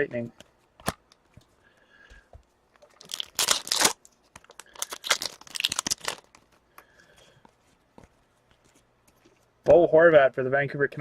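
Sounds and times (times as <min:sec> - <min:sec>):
wrapper crinkling and tearing: 0:02.8 - 0:06.6.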